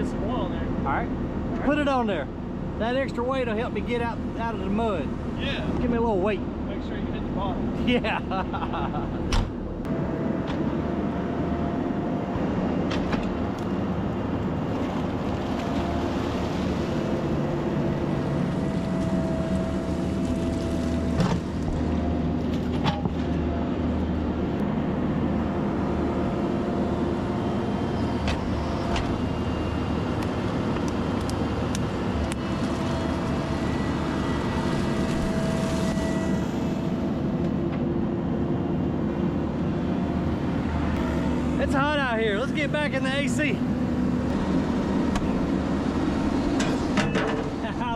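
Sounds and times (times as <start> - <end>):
diesel engines running: 0.0 - 47.9
high whine: 15.7 - 47.9.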